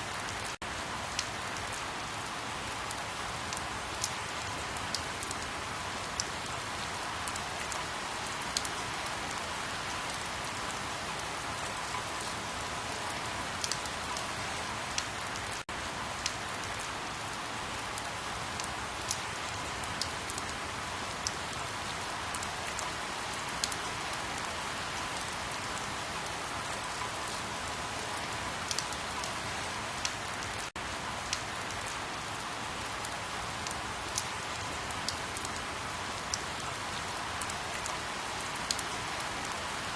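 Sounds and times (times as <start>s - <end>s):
steady rain: 0.0s - 39.9s
raindrop ticks: 1.1s - 1.8s, 4.8s - 5.5s, 28.7s - 29.3s.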